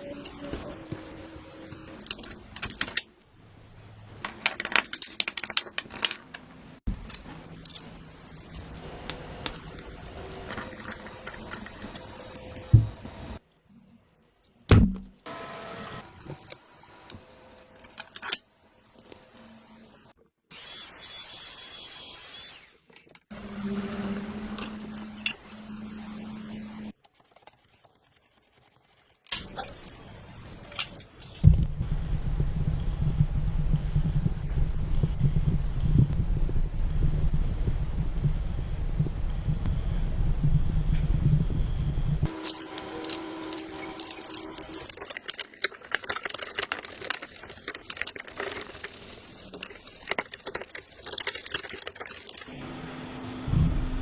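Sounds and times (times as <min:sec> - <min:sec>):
steady low hum: 0:31.4 - 0:44.8, 0:52.5 - 0:54.0.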